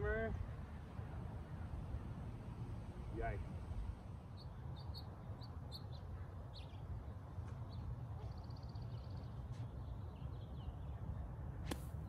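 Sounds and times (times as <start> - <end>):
small birds chirping: 4.2 - 12.0.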